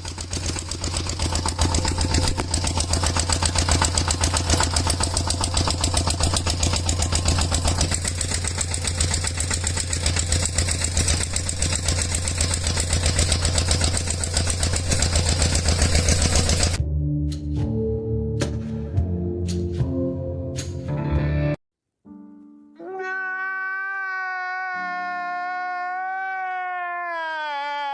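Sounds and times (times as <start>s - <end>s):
small tractor engine chugging: 0.0s - 16.8s.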